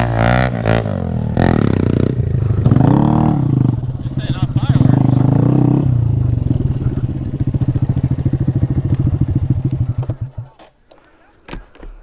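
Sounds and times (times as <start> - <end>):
motorcycle engine idling: 1.1 - 10.6.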